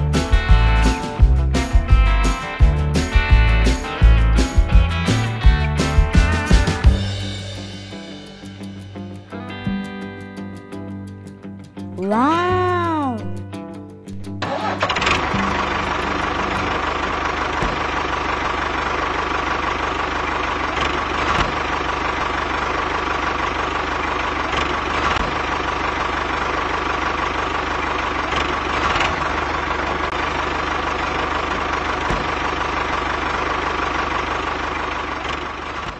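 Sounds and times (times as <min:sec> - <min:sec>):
tractor engine idling: 0:14.4 - 0:35.9.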